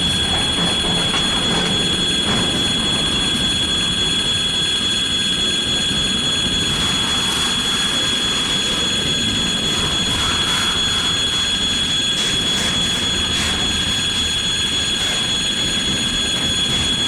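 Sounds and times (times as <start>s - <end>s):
freight train wagons rumbling: 0.0s - 17.0s
high-pitched whine: 0.0s - 17.0s.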